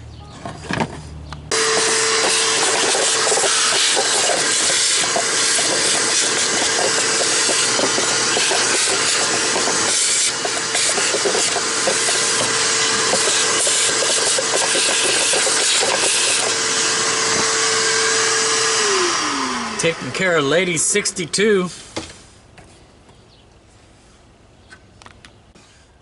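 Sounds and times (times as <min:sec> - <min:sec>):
vacuum cleaner running: 0:01.5 - 0:21.4.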